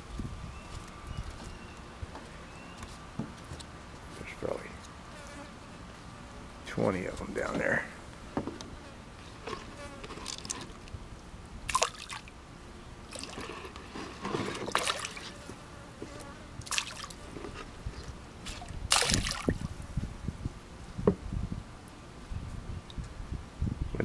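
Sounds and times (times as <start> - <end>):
fish splashing at water surface: 11.7 - 12.3, 14.6 - 15.3, 16.6 - 17.2, 18.5 - 19.7.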